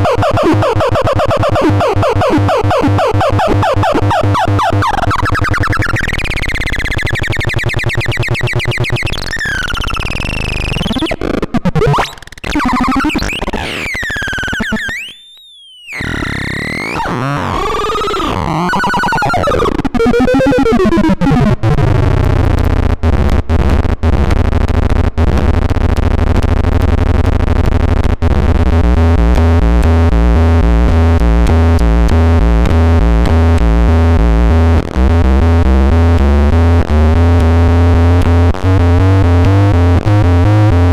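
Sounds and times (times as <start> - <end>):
synthesizer gliding tones: 0.0 - 5.7, 18.2 - 21.8
fast stepping synth pattern: 0.0 - 6.0, 18.8 - 21.8, 32.8 - 40.9
pulsing low drone: 28.7 - 40.9.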